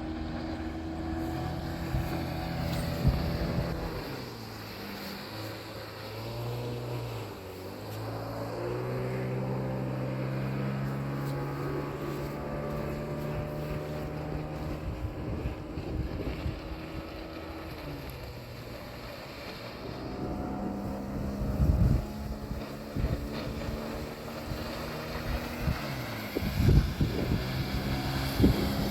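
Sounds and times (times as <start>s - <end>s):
wind buffeting microphone: 0.0s - 4.2s, 9.8s - 18.7s, 19.8s - 28.9s
engine running: 0.0s - 28.9s.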